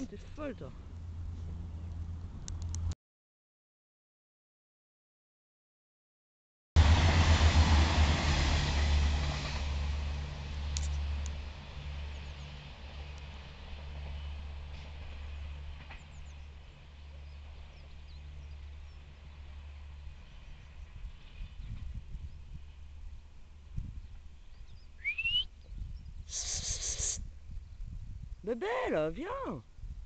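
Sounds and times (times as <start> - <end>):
passenger train passing: 6.8 - 25.4.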